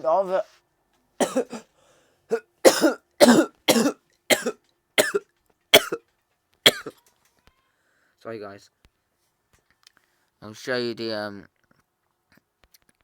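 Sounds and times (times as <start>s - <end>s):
person coughing: 1.2s - 1.7s, 2.3s - 5.2s, 5.8s - 6.0s, 6.7s - 7.0s.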